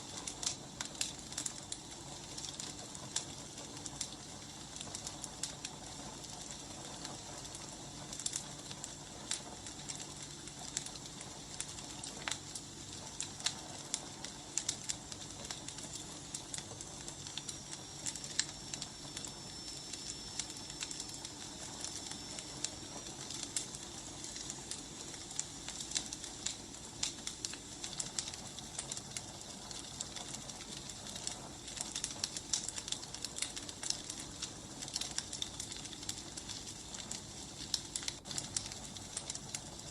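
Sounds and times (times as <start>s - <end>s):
firewood crackling and popping: 0.0s - 39.9s
soft hiss: 5.7s - 32.6s.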